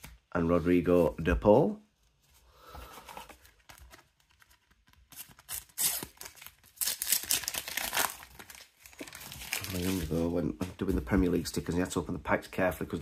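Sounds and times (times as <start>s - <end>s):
wrapper crinkling and tearing: 3.6s - 10.3s.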